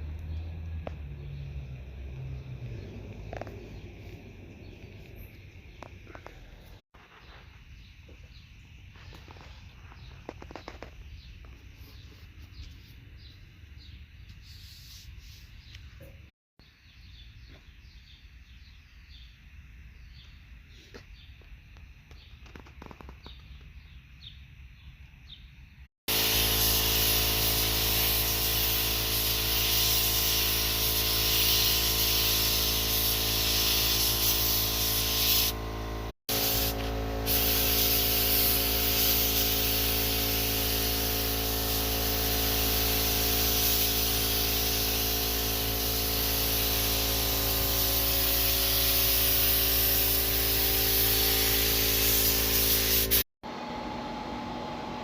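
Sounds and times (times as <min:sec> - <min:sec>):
loud hiss: 0:26.1 - 0:35.6, 0:36.3 - 0:53.2
motor running steadily: 0:32.8 - 0:52.6.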